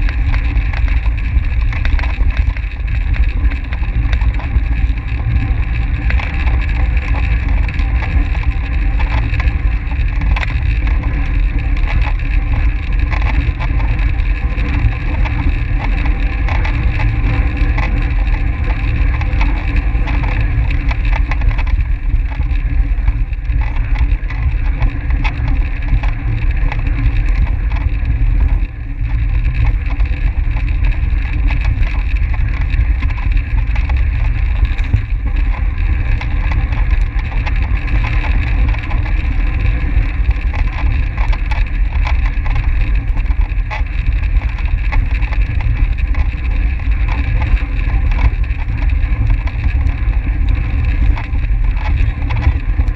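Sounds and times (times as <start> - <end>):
bike rattling clicks: 0.0 - 52.9
low rumble: 0.0 - 52.9
wind buffeting microphone: 0.0 - 52.9.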